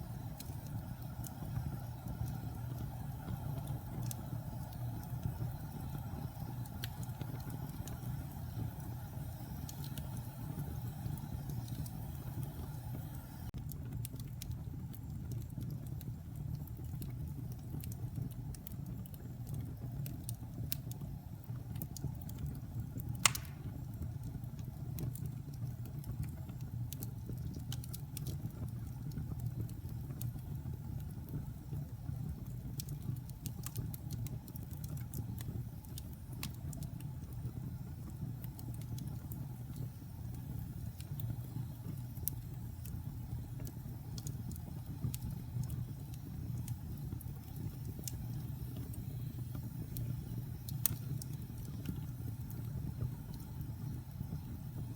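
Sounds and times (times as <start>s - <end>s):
fire burning in fireplace: 0.0s - 54.9s
sharp loud pop of wood: 23.2s - 23.7s.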